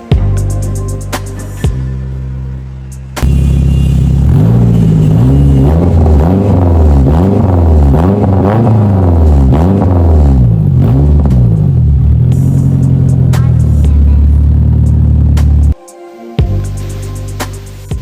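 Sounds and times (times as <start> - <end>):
car engine revving: 2.2 - 15.8.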